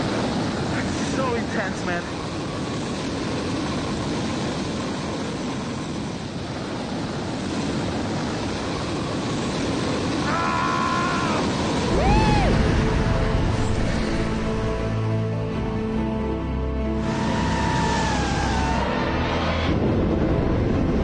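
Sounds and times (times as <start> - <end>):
rising and falling tone: 11.8 - 21.0
wind noise on microphone: 19.3 - 21.0.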